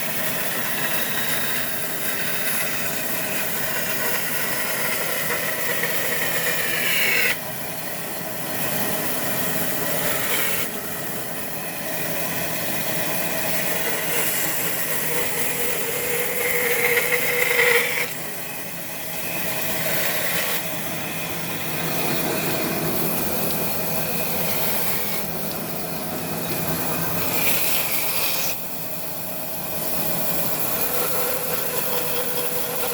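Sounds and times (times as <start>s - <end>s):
power saw cutting wood: 0.0s - 32.9s.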